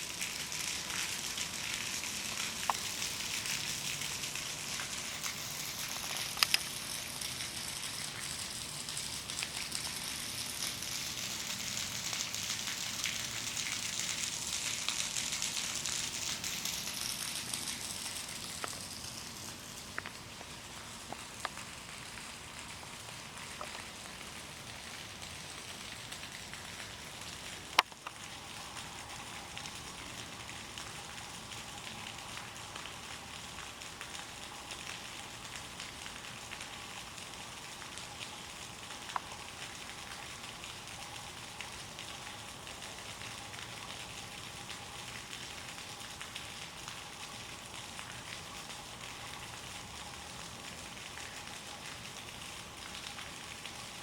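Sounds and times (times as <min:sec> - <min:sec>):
water hissing: 0:00.4 - 0:21.4.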